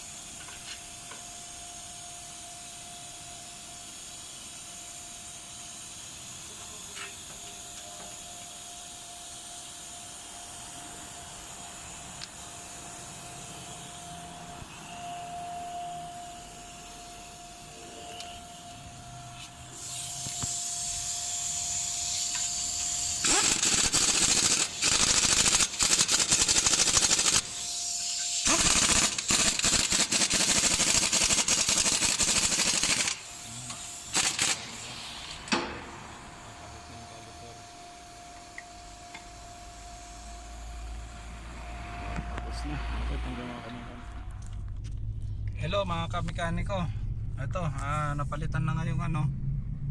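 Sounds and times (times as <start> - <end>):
air hiss: 0.0 - 14.9, 16.4 - 41.9
impact wrench rattling: 22.2 - 27.6, 28.4 - 33.3, 34.1 - 34.8.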